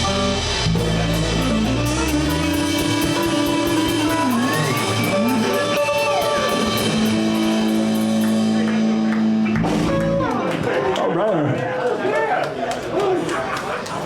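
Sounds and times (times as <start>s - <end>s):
drums and cymbals: 0.0s - 10.3s
electric guitar with bent notes: 0.0s - 10.7s
bass guitar: 0.0s - 10.8s.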